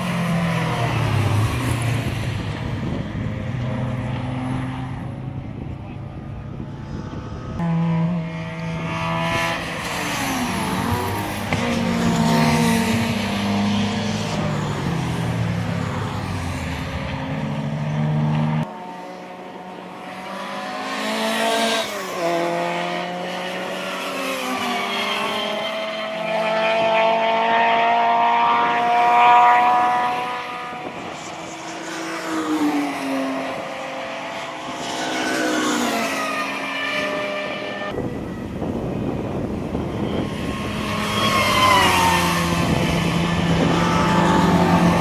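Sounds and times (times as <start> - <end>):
car engine accelerating: 0.0 - 45.0
rally car engines revving: 0.0 - 45.0.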